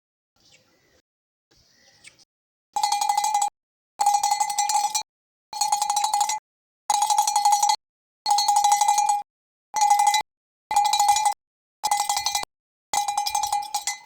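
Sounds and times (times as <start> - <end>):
metal bell jangling: 13.0 - 14.0.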